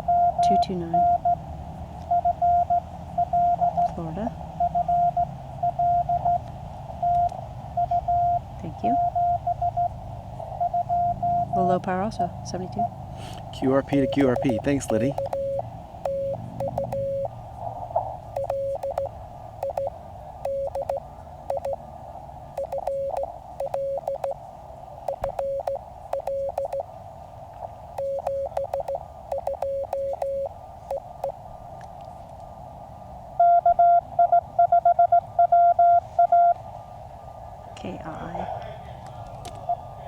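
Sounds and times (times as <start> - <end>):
morse code tone: 0.0 - 1.4, 2.1 - 3.8, 4.6 - 6.4, 7.0 - 9.9, 10.6 - 11.7, 13.8 - 17.3, 18.3 - 21.8, 22.6 - 24.4, 25.1 - 26.8, 28.0 - 31.4
receiver hiss: 13.2 - 31.6
higher-pitched fast morse tone: 13.6 - 17.3, 18.4 - 21.8, 22.6 - 24.4, 25.1 - 26.8, 28.0 - 30.5.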